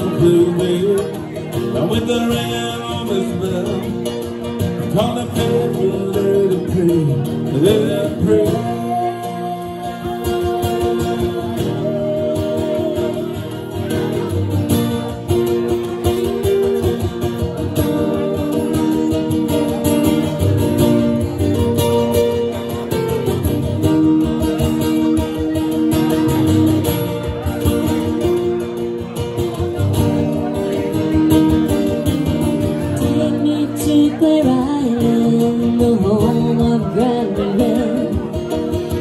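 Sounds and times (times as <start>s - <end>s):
held melody line: 0.0s - 39.0s
strummed acoustic guitar: 0.0s - 39.0s.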